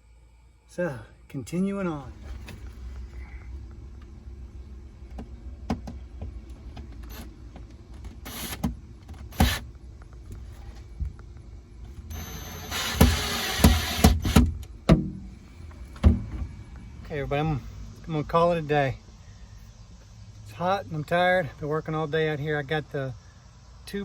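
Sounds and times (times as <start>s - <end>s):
low rumble: 1.7s - 12.9s, 14.6s - 18.4s
short rasping bursts: 8.1s - 9.7s, 12.1s - 14.5s.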